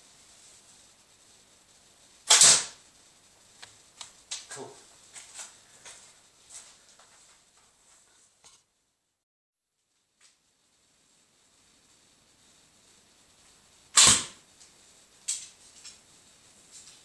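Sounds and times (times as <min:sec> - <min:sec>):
slingbow release: 0:02.2 - 0:02.8, 0:13.9 - 0:14.4.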